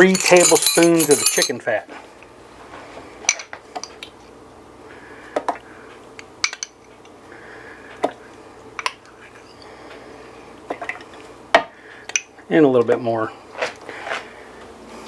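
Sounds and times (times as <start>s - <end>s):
metal spoon clinking on dish: 0.0s - 1.6s
faint steady hum: 0.0s - 15.0s.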